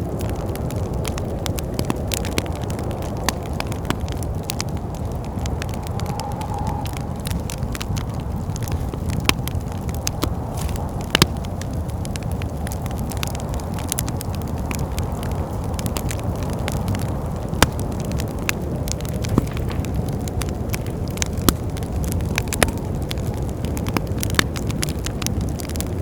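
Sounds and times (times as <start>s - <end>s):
wind rushing: 0.0s - 18.0s
wood fire crackling: 0.0s - 26.0s.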